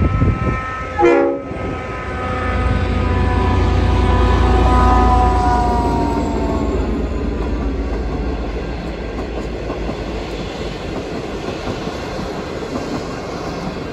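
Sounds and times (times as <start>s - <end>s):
locomotive horn: 0.0s - 7.3s
train carriages rumbling on rails: 0.0s - 13.9s.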